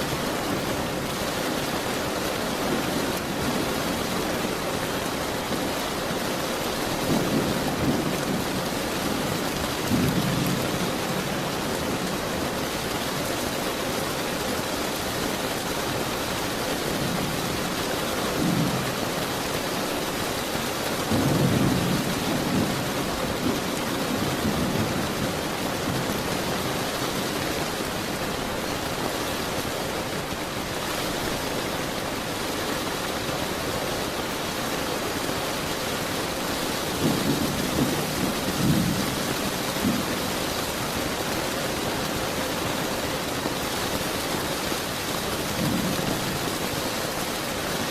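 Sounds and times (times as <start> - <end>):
steady rain: 0.0 - 47.9
thunder rumbling: 6.7 - 12.6, 21.0 - 28.8, 36.3 - 41.9.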